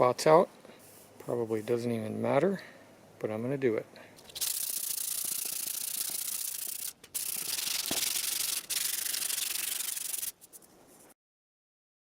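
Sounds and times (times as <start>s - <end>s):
sandpaper rubbing on metal: 4.3s - 10.7s.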